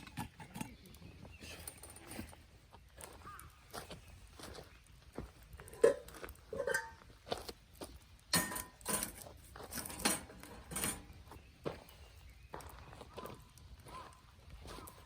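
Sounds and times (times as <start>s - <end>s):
cookware knocking and clinking: 5.7s - 7.0s, 8.4s - 9.2s.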